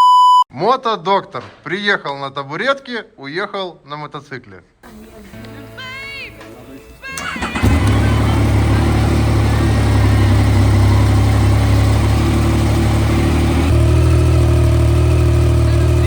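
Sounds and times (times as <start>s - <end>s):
motorcycle engine running: 7.2s - 16.0s.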